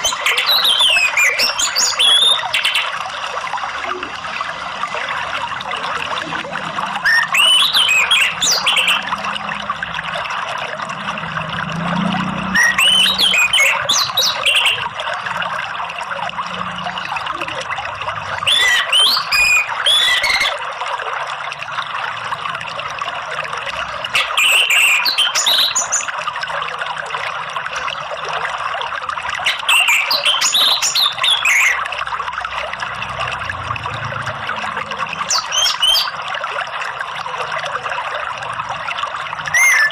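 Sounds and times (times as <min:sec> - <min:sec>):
thrush whistled song: 0:00.0 - 0:03.0, 0:07.0 - 0:09.4, 0:12.5 - 0:14.8, 0:18.4 - 0:20.6, 0:24.2 - 0:26.2, 0:29.4 - 0:31.8, 0:35.2 - 0:36.2, 0:39.4 - 0:39.9
flowing water rushing: 0:00.0 - 0:39.9.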